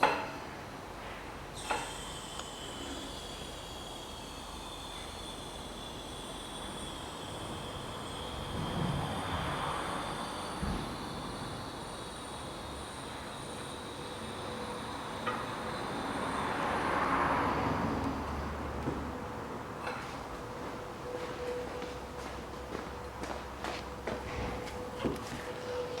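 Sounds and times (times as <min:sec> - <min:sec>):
faint high hum: 0:00.4 - 0:26.0
steady hiss: 0:00.8 - 0:18.8.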